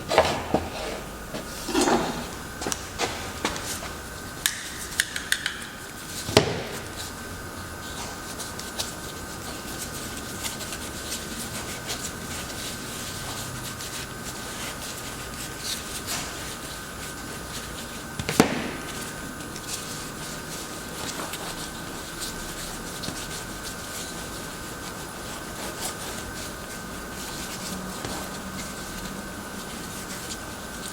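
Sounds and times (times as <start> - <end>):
faint steady hum: 0.0 - 30.9
objects clicking and tapping: 1.7 - 6.9.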